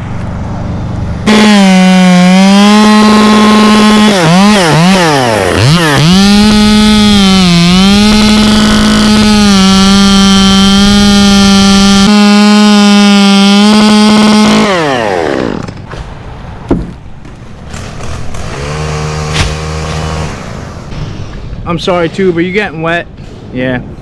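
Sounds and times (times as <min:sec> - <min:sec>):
chainsaw cutting wood: 0:01.2 - 0:15.9, 0:17.7 - 0:20.8.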